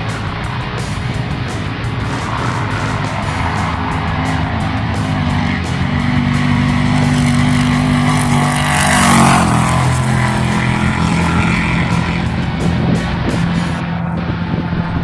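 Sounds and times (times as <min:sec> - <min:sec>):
motor vehicle engine running: 0:00.0 - 0:15.0.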